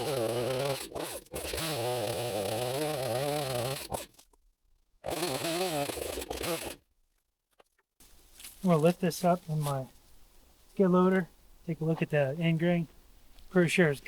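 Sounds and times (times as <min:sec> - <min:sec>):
chainsaw cutting wood: 0:00.0 - 0:04.2, 0:05.0 - 0:06.8.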